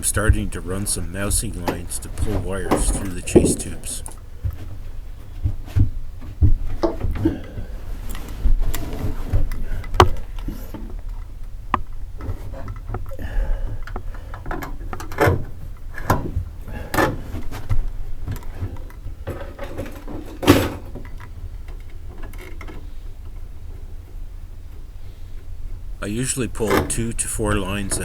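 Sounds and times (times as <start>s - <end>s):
steady low rumble: 0.0s - 4.2s
knocks and clicks in boat hull: 1.5s - 24.9s.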